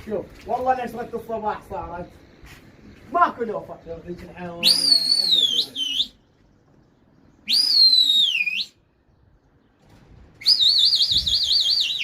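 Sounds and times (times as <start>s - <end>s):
person whistling loudly: 4.6s - 6.2s, 7.5s - 8.8s, 10.4s - 12.0s.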